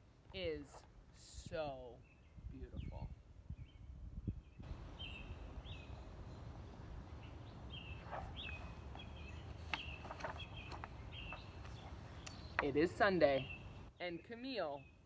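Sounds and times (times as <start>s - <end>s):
small bird chirping: 7.1s - 13.9s.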